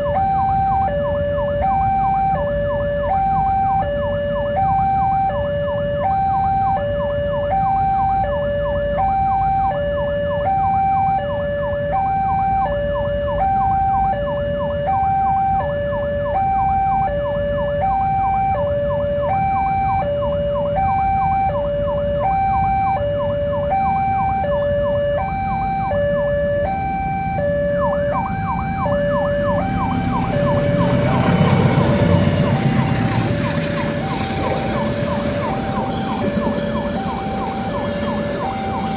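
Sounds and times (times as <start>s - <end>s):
two-tone crossing alarm: 0.0s - 38.9s
passing train rumble: 26.8s - 38.9s.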